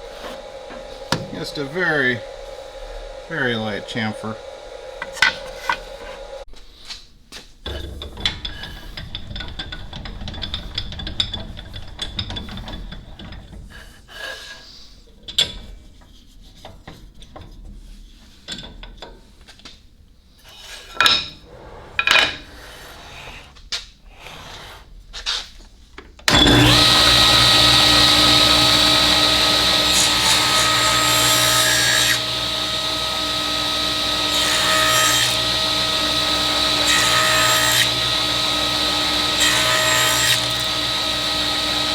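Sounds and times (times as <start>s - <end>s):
shaper whining: 0.0s - 6.5s, 26.3s - 41.9s.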